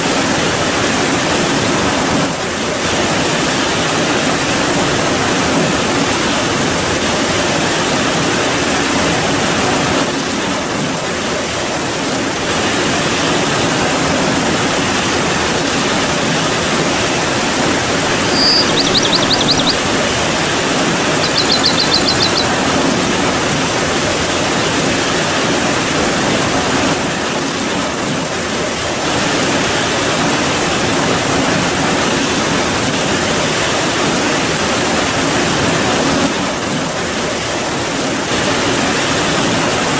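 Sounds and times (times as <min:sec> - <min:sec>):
steady rain: 0:00.0 - 0:39.9
bird trilled calls: 0:17.5 - 0:23.4.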